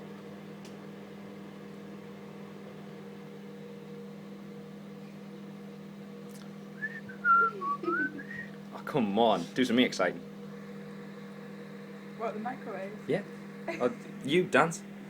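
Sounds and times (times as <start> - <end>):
microwave oven humming: 0.0 - 15.0
person whistling: 6.8 - 8.5.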